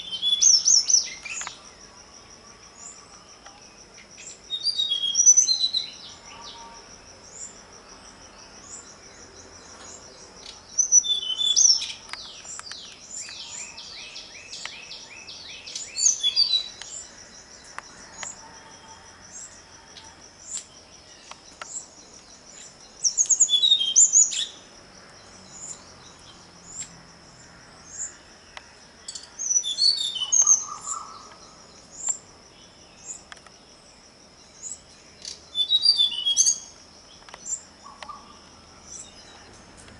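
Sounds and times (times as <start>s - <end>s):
birds chirping and calling: 0.0s - 1.7s, 8.6s - 19.6s, 20.4s - 26.9s, 27.9s - 32.2s, 34.6s - 39.9s
insect trill: 0.0s - 39.9s.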